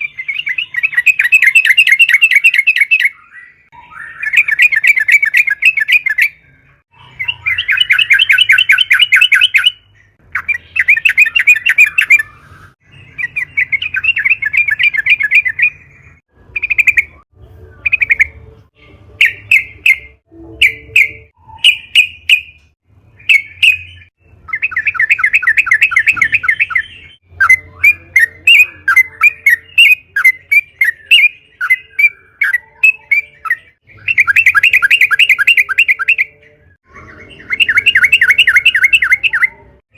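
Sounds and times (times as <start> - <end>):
bird singing chattering trills: 0.0 - 18.5, 19.2 - 39.8.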